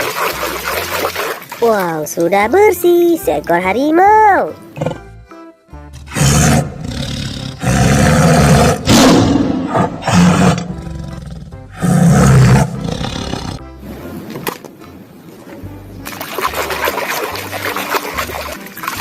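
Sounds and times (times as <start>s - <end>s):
background music: 0.0s - 19.0s
tiger roaring: 4.7s - 5.2s, 6.0s - 13.6s.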